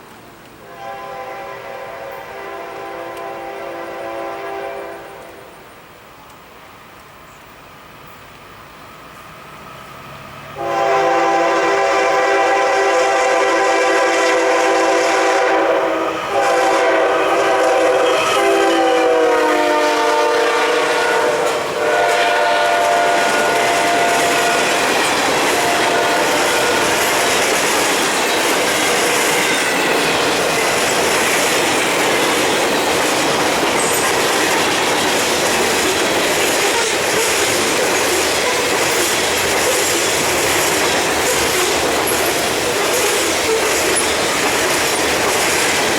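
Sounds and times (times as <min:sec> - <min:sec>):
train rolling on rails: 0:00.0 - 0:45.9
locomotive air horn blasts: 0:00.6 - 0:05.6, 0:10.6 - 0:27.4.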